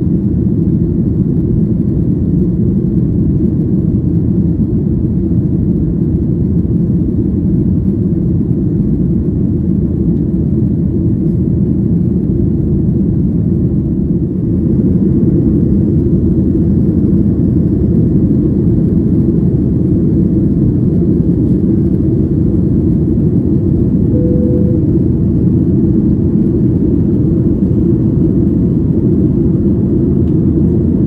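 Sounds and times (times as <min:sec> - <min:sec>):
jet engines rumbling in cabin: 0:00.0 - 0:31.0.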